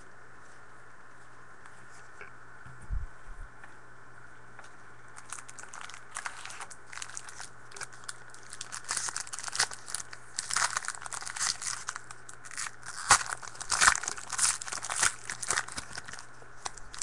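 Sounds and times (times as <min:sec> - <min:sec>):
wrapper crinkling and rustling: 0:05.1 - 0:17.0.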